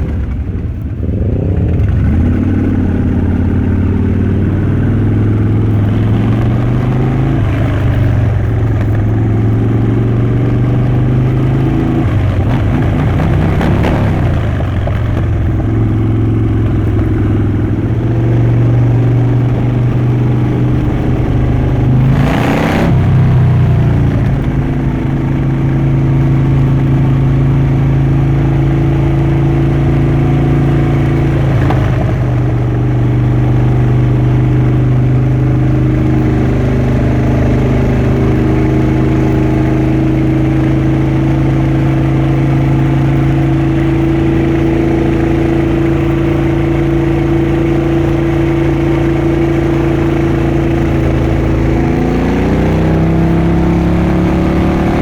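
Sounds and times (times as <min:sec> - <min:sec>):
motorcycle engine running: 0:00.0 - 0:55.0
rushing sweep: 0:17.1 - 0:28.8.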